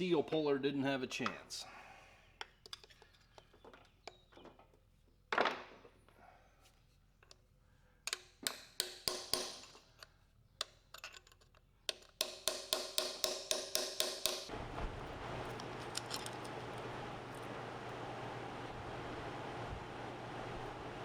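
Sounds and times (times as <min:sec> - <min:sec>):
steady hissing rush: 0:14.5 - 0:21.0.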